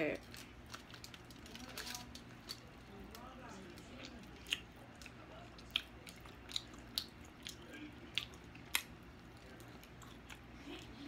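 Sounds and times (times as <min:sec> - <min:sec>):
person chewing wetly: 0:00.3 - 0:11.0
lip smacks and mouth clicks: 0:04.4 - 0:09.0.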